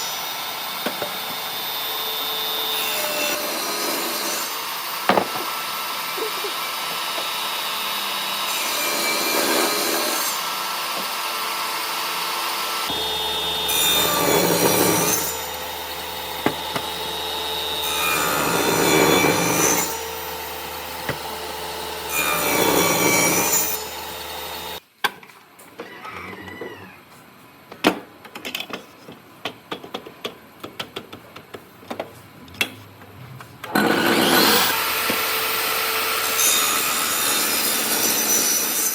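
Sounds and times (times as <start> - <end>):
wood being sawn: 12.7 - 24.8.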